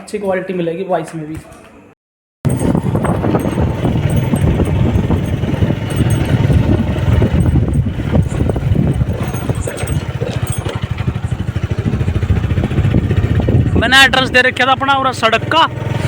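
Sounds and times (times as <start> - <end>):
motorcycle engine running: 2.4 - 16.0.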